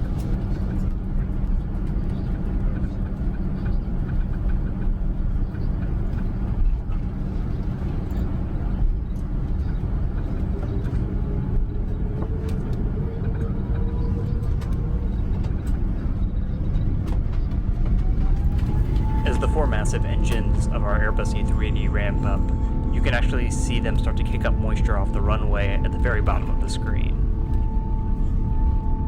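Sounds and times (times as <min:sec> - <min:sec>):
jet engines whining: 0:00.0 - 0:29.0
low rumble inside aircraft cabin: 0:00.0 - 0:29.0.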